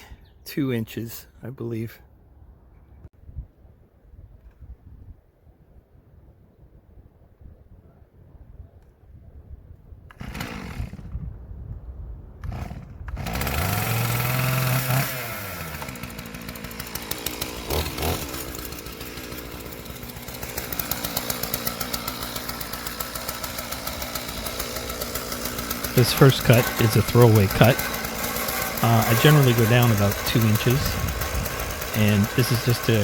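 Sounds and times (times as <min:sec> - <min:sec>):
chainsaw starting and running: 0:10.1 - 0:11.3, 0:12.4 - 0:33.0.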